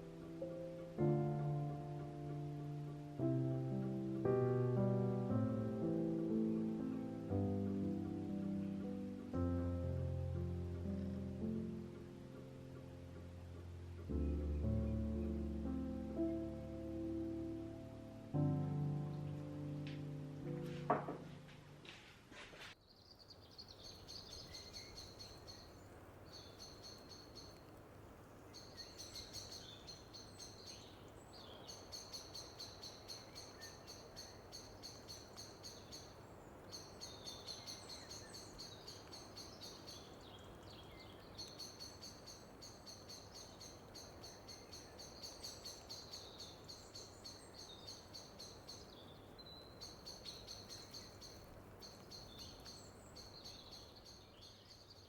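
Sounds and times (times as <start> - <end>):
soft hiss: 0.0 - 54.8
bird chirring trills: 23.4 - 27.6, 28.4 - 55.0.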